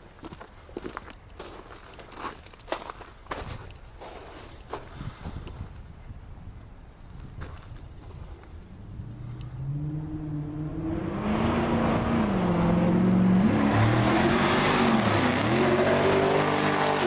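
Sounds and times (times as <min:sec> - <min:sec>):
engine revving: 0:08.8 - 0:17.0.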